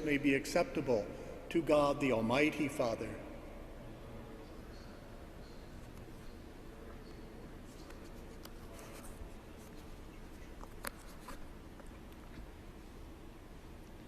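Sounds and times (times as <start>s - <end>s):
faint rustling and handling noises: 5.6s - 14.0s.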